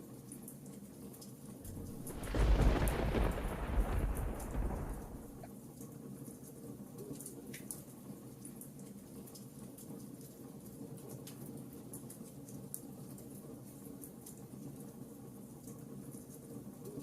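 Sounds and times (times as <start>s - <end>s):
wood fire crackling: 1.6s - 5.5s
rain rushing: 1.7s - 5.5s.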